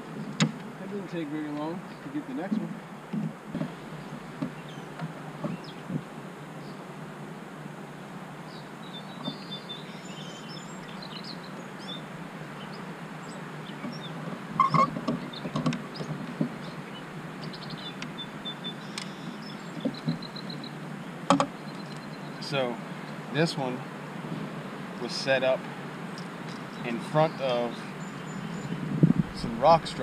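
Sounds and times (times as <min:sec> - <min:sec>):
small birds chirping: 0:00.0 - 0:07.2, 0:08.3 - 0:30.0
background hiss: 0:00.0 - 0:30.0
knocks and clatter on kayak: 0:02.6 - 0:06.1, 0:13.8 - 0:16.7, 0:19.7 - 0:20.3, 0:21.2 - 0:22.0.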